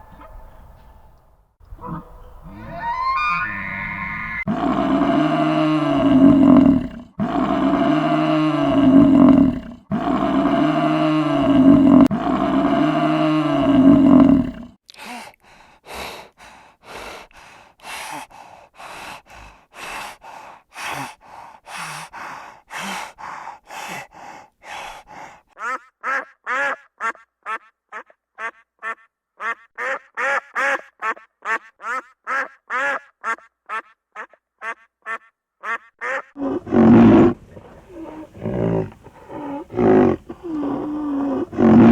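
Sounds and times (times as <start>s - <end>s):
low-pitched animal calls: 1.7s - 14.6s, 36.4s - 41.9s.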